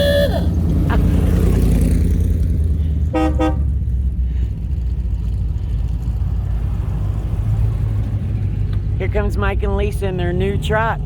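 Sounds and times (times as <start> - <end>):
car engine rolling past: 0.4 - 11.0
car horn toots: 3.1 - 3.7.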